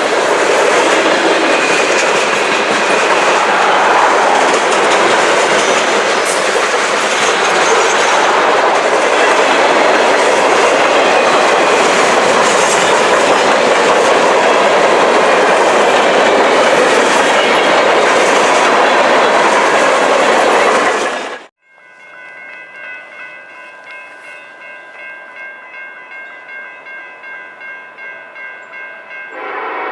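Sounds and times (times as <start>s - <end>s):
train wheels on rails: 0.0s - 21.5s.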